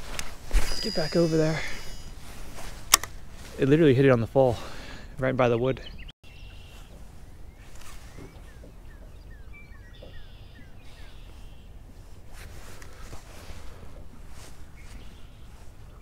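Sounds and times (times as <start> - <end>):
bird chirping: 0.7 - 2.2, 5.4 - 11.8, 14.7 - 16.0.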